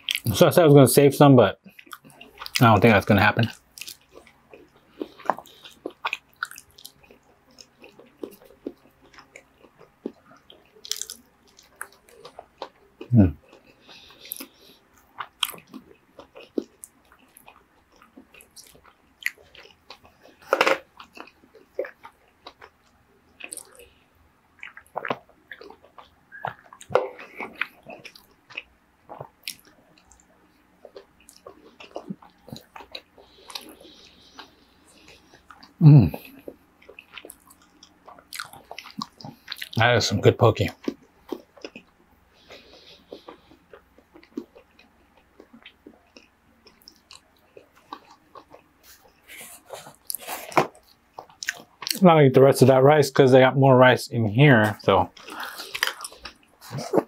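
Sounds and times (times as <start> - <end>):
close chewing and wet mouth sounds: 0.0 - 0.4, 1.6 - 52.0, 54.6 - 57.0
swallowing: 24.6 - 30.2.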